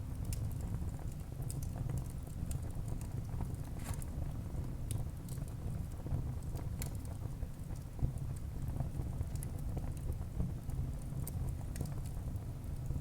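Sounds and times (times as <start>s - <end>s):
low rumble of flames: 0.0s - 13.0s
fire crackling and popping: 0.1s - 13.0s.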